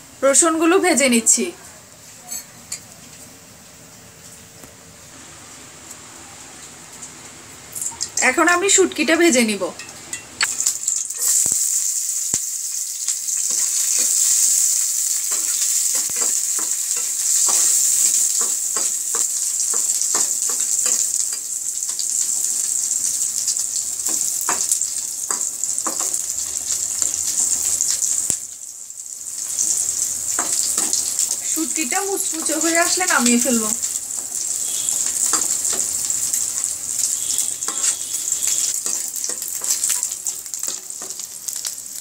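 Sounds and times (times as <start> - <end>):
fish sizzling in hot oil: 10.4 - 42.0.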